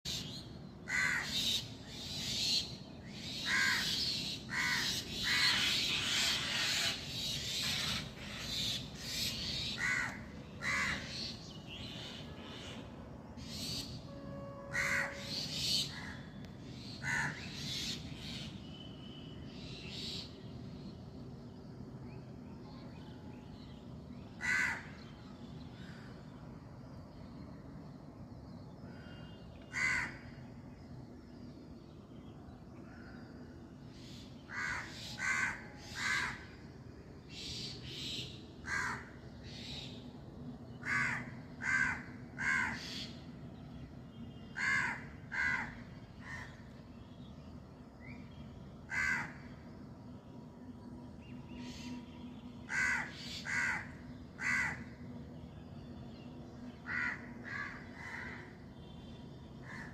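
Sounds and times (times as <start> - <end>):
crows cawing: 0.9 - 1.4, 3.4 - 7.0, 9.8 - 11.2, 14.7 - 15.3, 17.0 - 17.5, 24.4 - 25.0, 29.7 - 30.3, 34.5 - 36.5, 38.6 - 39.2, 40.8 - 43.1, 44.6 - 46.6, 48.9 - 49.5, 52.7 - 55.0, 56.8 - 58.5, 59.6 - 59.9.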